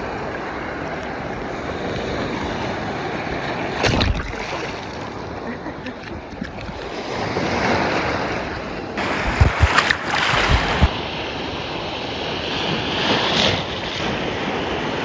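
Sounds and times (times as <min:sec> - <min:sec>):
waves breaking: 0:00.0 - 0:15.0
wind thuds on microphone: 0:09.0 - 0:11.0.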